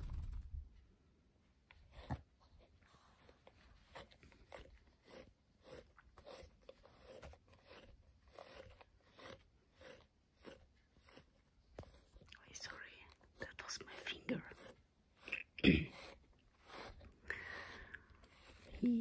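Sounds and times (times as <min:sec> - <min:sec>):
faint crunching strokes: 0:02.1 - 0:19.0.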